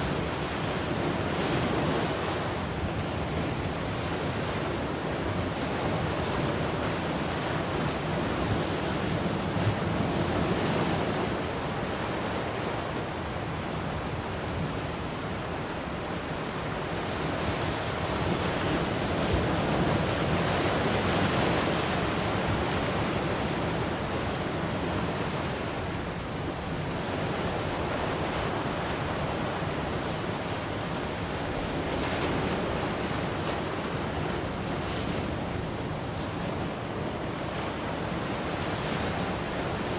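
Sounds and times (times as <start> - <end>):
waves breaking: 0.0 - 39.9.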